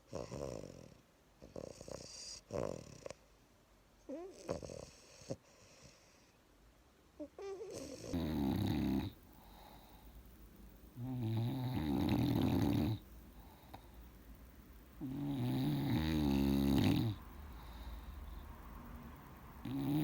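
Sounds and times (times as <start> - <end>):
dog snoring: 0.0 - 3.3, 4.1 - 6.3, 7.4 - 10.2, 10.9 - 14.1, 15.0 - 18.5, 19.6 - 20.0.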